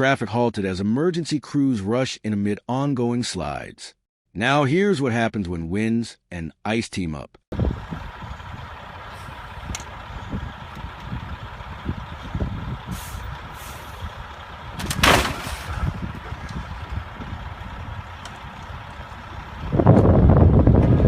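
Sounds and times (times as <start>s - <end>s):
vehicle rumbling on road: 7.5s - 21.0s.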